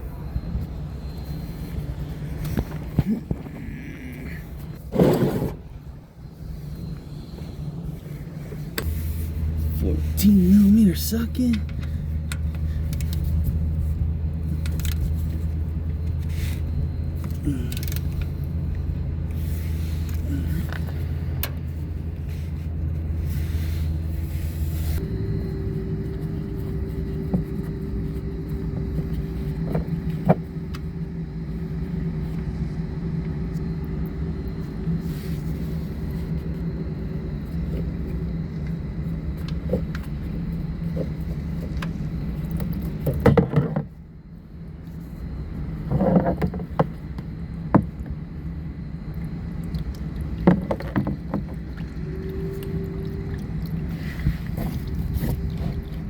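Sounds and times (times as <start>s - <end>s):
low engine-like hum: 0.0s - 56.0s
faint higher tone: 25.0s - 30.1s, 52.0s - 53.4s.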